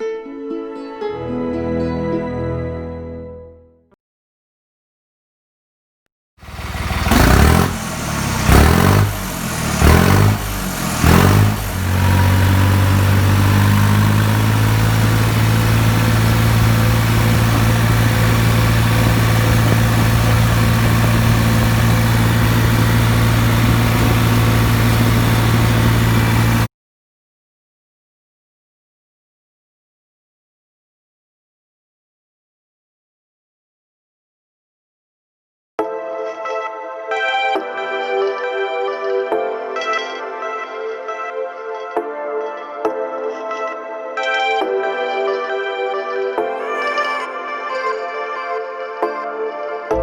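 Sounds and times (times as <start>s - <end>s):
tractor diesel engine revving: 6.4s - 26.7s.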